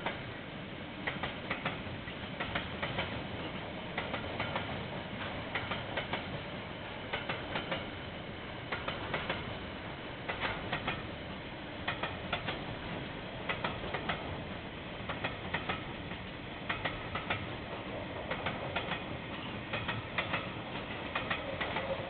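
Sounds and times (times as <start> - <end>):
train wheels clicking over rail joints: 0.0 - 0.3, 1.0 - 22.0
train rumble and hiss: 0.0 - 22.0.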